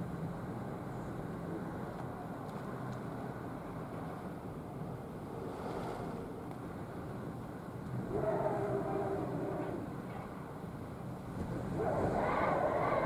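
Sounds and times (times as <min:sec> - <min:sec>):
strong wind on microphone: 0:11.2 - 0:13.0.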